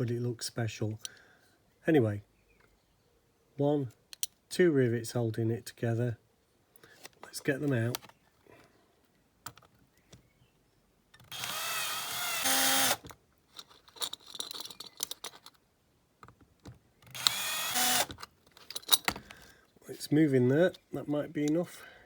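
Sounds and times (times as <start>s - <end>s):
small electric drill drilling: 11.2s - 13.1s, 17.1s - 18.2s
light clicks and scraping: 13.1s - 15.6s, 18.2s - 19.8s.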